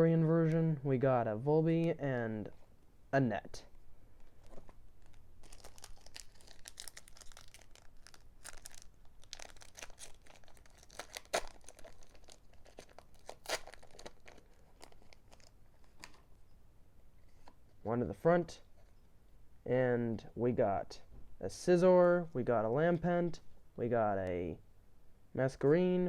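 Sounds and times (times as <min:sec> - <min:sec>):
foil wrapper crinkling: 0:04.3 - 0:16.2
foil wrapper ripping: 0:05.0 - 0:16.1.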